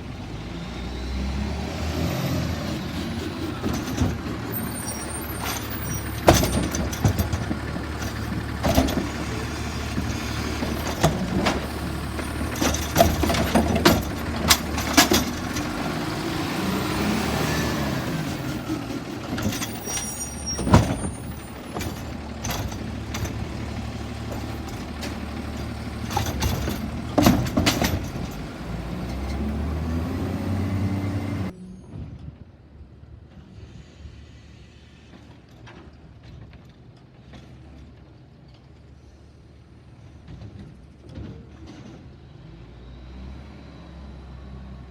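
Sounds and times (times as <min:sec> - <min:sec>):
diesel engine running: 0:00.0 - 0:31.6.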